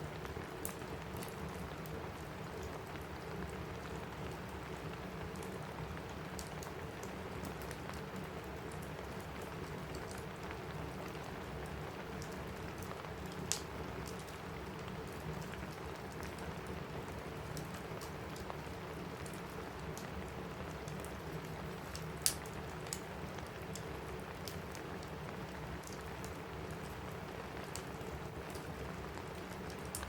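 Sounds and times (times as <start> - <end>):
rain on a roof: 0.0 - 30.0
wood fire crackling: 0.0 - 30.0.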